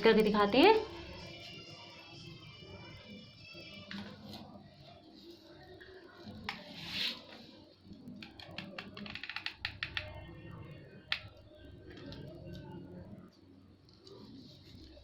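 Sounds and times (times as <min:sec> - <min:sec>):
rustling of craft materials: 0:03.8 - 0:09.8
small clicks and taps: 0:08.2 - 0:10.2.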